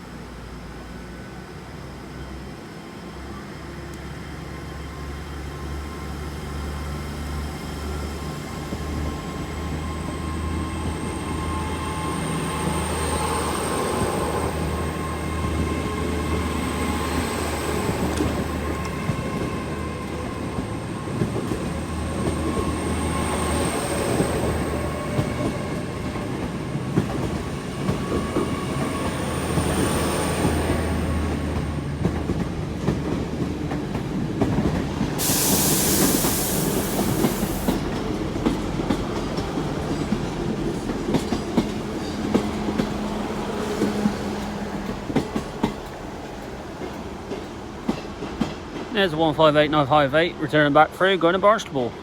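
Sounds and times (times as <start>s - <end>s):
train engine hum: 0.0s - 52.0s
train wheels clicking on rails: 12.2s - 49.7s.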